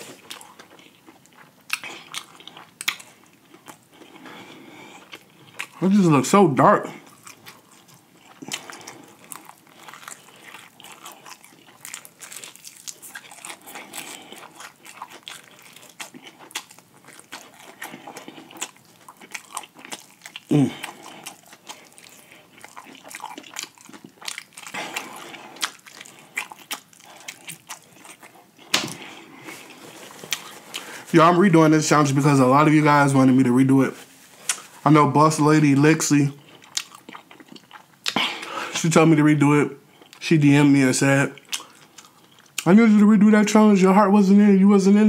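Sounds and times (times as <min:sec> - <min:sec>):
crunchy chewing: 0:00.0 - 0:06.2, 0:06.8 - 0:31.1, 0:36.2 - 0:38.5, 0:41.3 - 0:42.7
wet mouth smacks: 0:28.7 - 0:29.0, 0:34.4 - 0:34.7.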